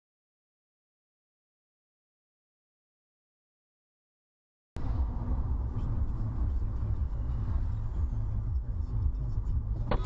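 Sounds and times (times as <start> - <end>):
car road and engine rumble: 4.8 - 10.0.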